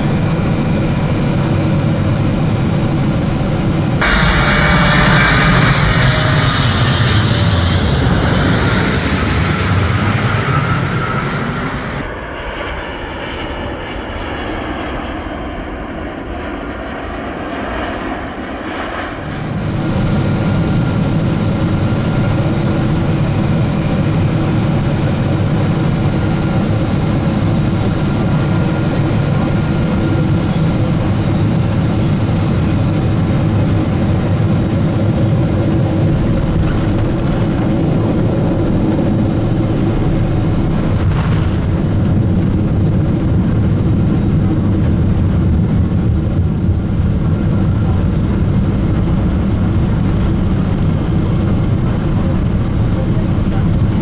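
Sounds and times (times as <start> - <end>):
jet engine noise: 0.0 - 54.0
faint steady whine: 19.2 - 36.3.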